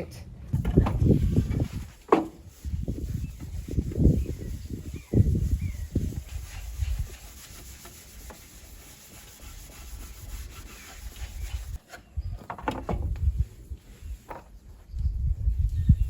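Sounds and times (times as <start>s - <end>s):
cloth rubbing on wood: 1.0s - 11.8s.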